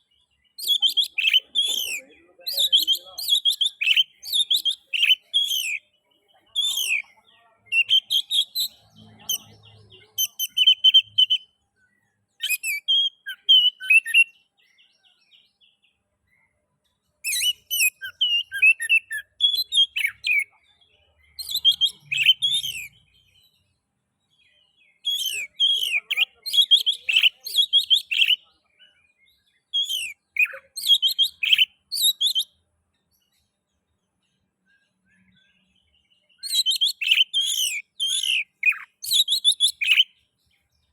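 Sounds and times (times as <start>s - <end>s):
bird whistling and chattering: 0.6s - 5.8s, 6.6s - 11.6s, 12.4s - 14.3s, 17.2s - 20.6s, 21.3s - 23.0s, 25.0s - 28.5s, 29.7s - 32.6s, 36.4s - 40.2s.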